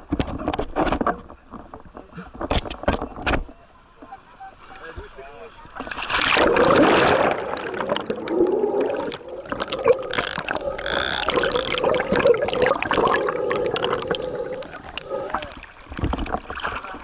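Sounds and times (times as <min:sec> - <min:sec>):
water sloshing against a boat: 0:00.0 - 0:17.0
steady hum: 0:06.2 - 0:15.9.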